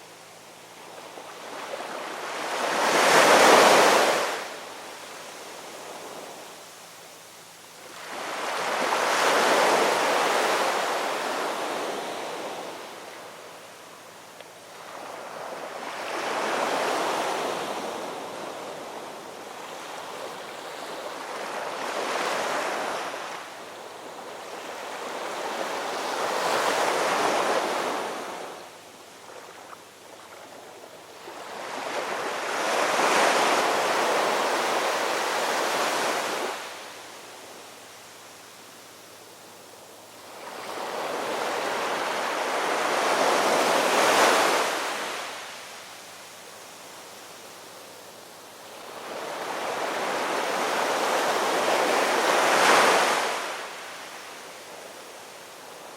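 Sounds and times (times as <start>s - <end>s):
ocean waves washing ashore: 0.0s - 55.9s.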